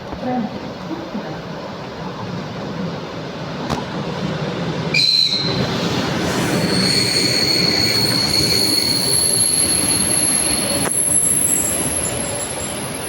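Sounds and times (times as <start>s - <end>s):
train rumbling on track: 0.0s - 13.0s
high-pitched metallic squeal: 6.2s - 13.0s.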